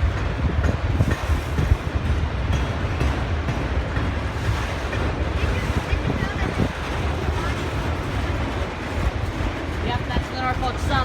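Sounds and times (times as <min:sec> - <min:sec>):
freight train rumble: 0:00.0 - 0:11.0
wind buffeting microphone: 0:00.0 - 0:11.0.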